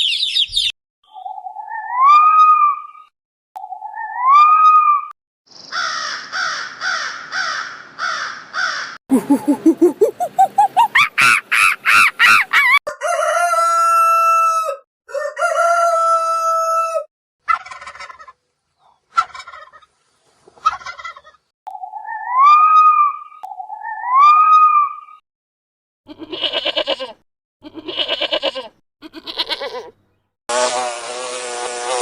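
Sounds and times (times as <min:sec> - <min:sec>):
hen cackling: 0:05.7 - 0:18.4, 0:19.1 - 0:19.9, 0:20.6 - 0:24.8, 0:26.1 - 0:30.0
hen clucking: 0:09.1 - 0:12.8, 0:17.4 - 0:22.0
rooster crowing: 0:12.8 - 0:17.1.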